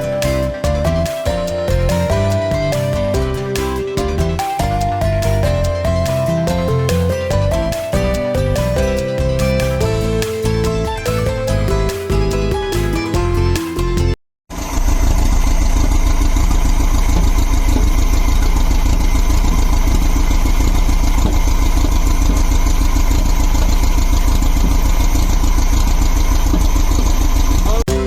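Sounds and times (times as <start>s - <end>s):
car engine idling: 14.5s - 27.8s.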